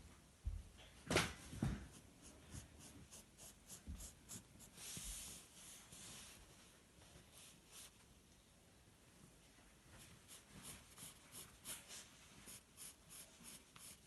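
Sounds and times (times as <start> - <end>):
pencil scratching on paper: 1.9 - 5.4, 10.3 - 14.0.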